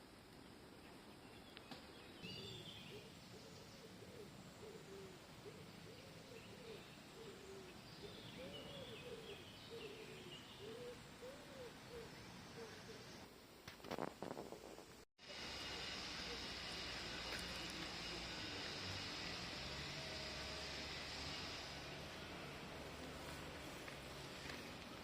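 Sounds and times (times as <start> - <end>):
high songbird chirps: 0.8 - 13.2
low cooing bird notes: 2.3 - 13.2.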